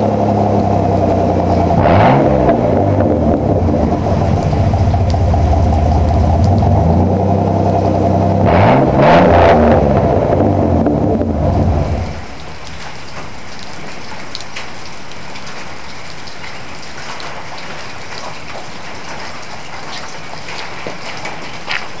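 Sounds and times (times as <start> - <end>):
truck exhaust revving: 0.0 - 12.4
light crackles: 3.9 - 7.0, 11.8 - 22.0.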